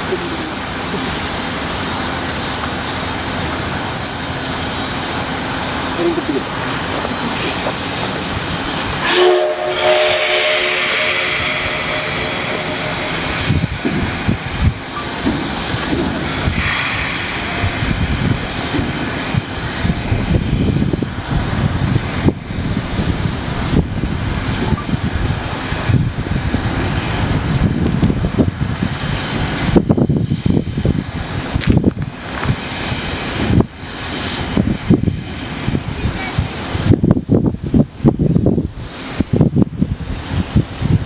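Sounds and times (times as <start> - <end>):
steam hiss: 0.0 - 41.0
low rumble: 8.2 - 24.3
steam locomotive whistle: 8.4 - 21.0.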